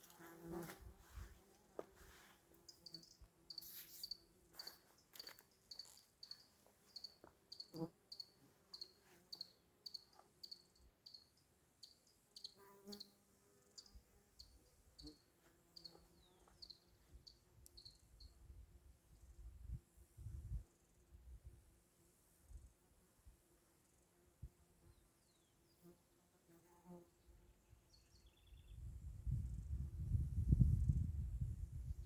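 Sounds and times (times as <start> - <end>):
faint insect chirping: 2.5 - 21.4, 23.6 - 26.0.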